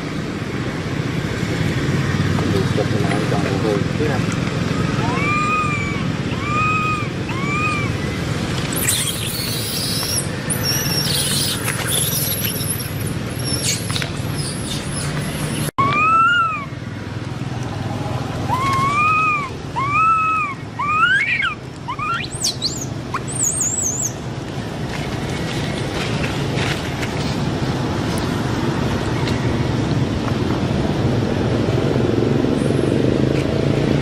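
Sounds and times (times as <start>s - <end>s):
baby monkey crying: 5.0s - 8.2s, 15.8s - 16.8s, 18.5s - 24.1s.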